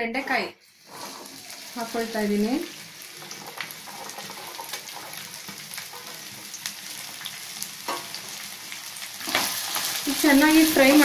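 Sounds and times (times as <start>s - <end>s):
okra sizzling in oil: 0.2s - 11.0s.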